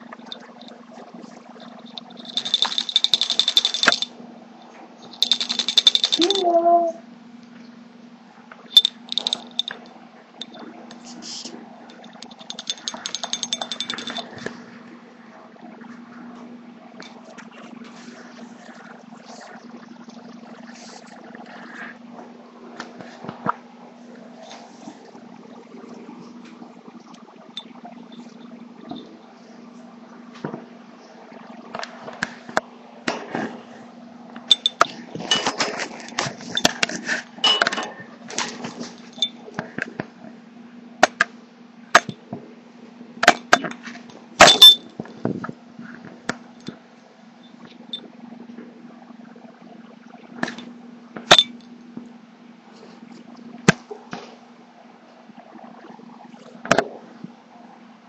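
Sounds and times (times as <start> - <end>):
steady low hum: 0.0 - 58.0
beak tapping and clicking: 1.8 - 4.1, 5.2 - 6.3.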